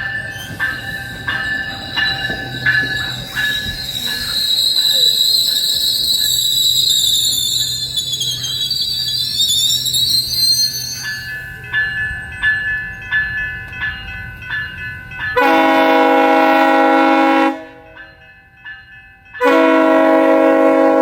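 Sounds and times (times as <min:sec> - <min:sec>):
train wheels squealing: 0:00.0 - 0:11.8
bell ringing evenly: 0:00.0 - 0:16.4
locomotive horn blasts: 0:15.4 - 0:18.0, 0:19.4 - 0:21.0.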